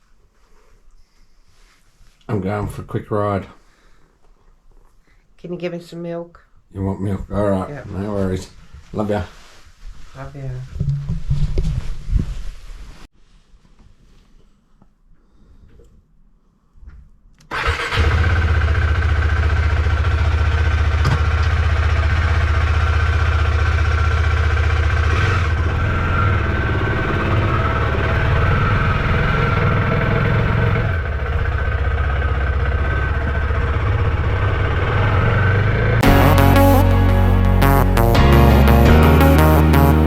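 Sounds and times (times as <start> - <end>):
motorcycle engine starting and running: 17.5 - 37.4
music: 36.0 - 40.0.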